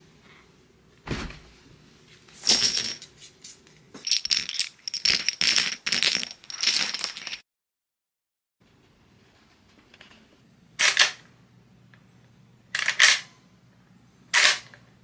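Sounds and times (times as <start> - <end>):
rifle metal clinking: 4.1 - 7.4.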